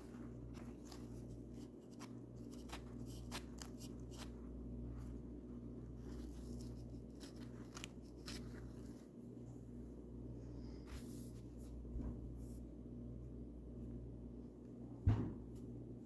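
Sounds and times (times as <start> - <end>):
paintbrush strokes: 0.0 - 12.7.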